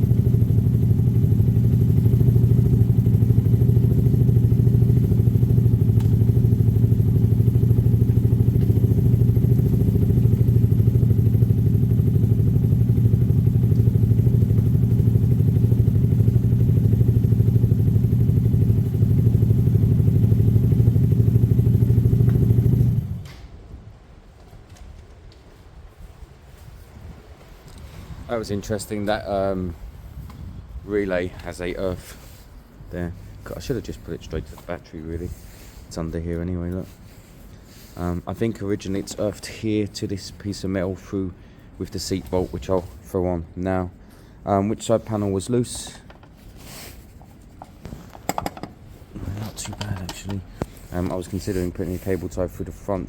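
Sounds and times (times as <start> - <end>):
motorcycle engine running: 0.0 - 23.3.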